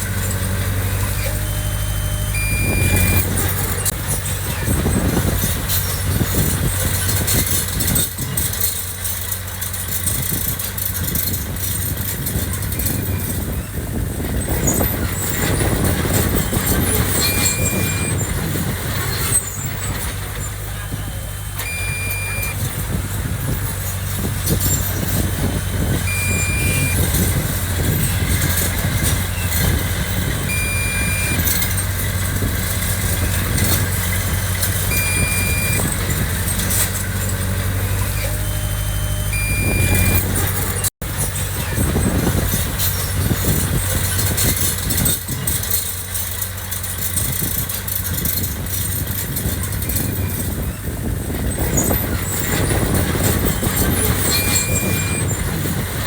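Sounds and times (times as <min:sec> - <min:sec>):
diesel engine running: 0:00.0 - 0:56.0
high-pitched warning beep: 0:01.2 - 0:03.9, 0:16.4 - 0:18.3, 0:21.6 - 0:22.8, 0:26.1 - 0:27.2, 0:30.4 - 0:31.7, 0:34.9 - 0:35.9, 0:38.2 - 0:40.4, 0:54.2 - 0:55.4.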